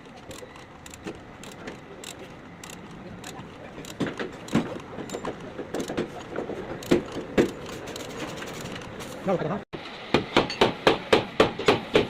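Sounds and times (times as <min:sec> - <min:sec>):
metallic clicks and knocks: 0:00.0 - 0:09.0.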